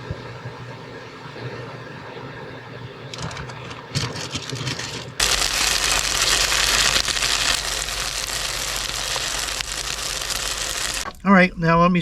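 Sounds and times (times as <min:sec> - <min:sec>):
oil crackling: 0:03.2 - 0:11.2
dumplings sizzling in a pan: 0:05.2 - 0:11.1.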